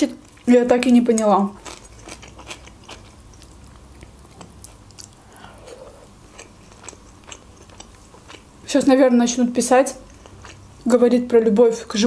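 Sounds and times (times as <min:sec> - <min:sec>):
close chewing with wet mouth clicks: 0:01.1 - 0:08.5.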